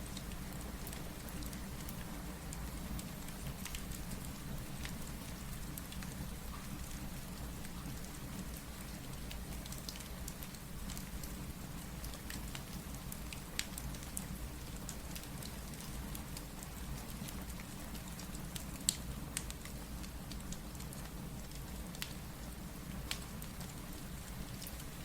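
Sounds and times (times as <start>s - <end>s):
steady rain: 0.0s - 25.0s
wood fire crackling: 0.1s - 6.2s, 8.0s - 25.0s.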